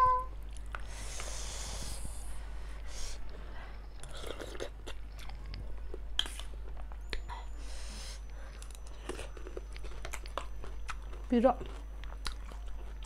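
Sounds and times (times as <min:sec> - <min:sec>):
steady low hum: 0:00.0 - 0:13.0
person chewing and slurping: 0:04.0 - 0:07.3, 0:08.2 - 0:13.0.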